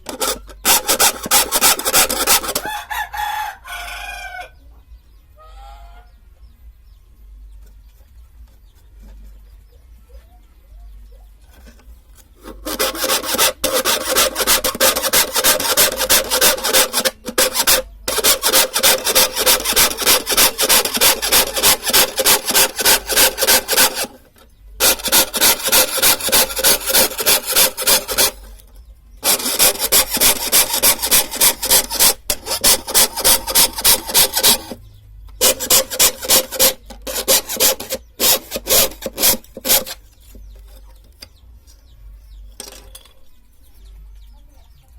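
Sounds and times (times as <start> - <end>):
hand saw cutting wood: 0.0 - 3.4, 11.5 - 24.2, 24.8 - 28.6, 29.2 - 34.8, 35.4 - 40.8.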